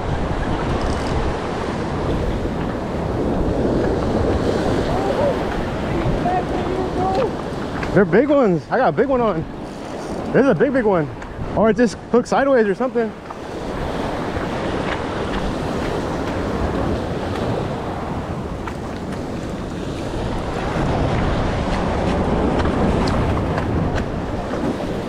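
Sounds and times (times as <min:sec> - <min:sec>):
waves washing against rocks: 0:00.0 - 0:25.0
wind buffeting microphone: 0:00.0 - 0:25.0.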